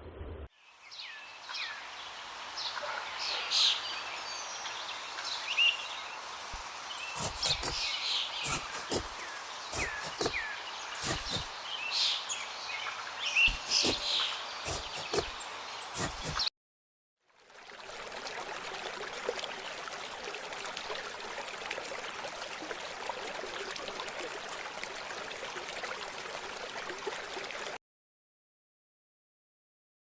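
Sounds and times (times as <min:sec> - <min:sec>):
small birds chirping: 0:03.8 - 0:16.5.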